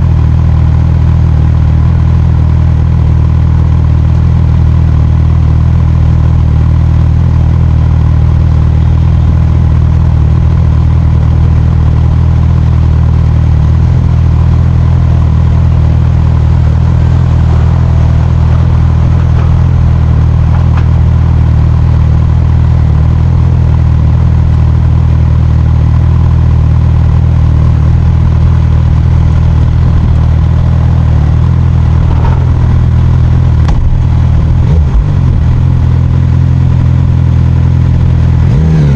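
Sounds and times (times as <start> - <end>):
motorcycle engine droning: 0.0 - 38.9.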